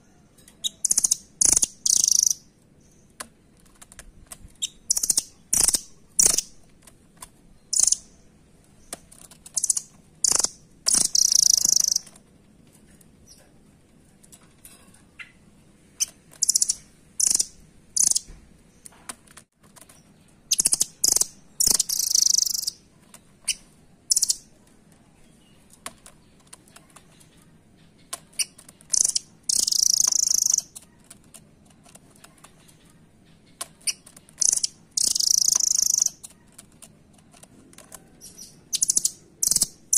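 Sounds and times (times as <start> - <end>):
bird high-pitched chirps: 0.4 - 3.1, 4.6 - 6.6, 7.6 - 12.2, 16.0 - 18.3, 20.5 - 22.8, 23.4 - 24.6, 26.9 - 31.0, 32.4 - 36.6, 38.1 - 39.9.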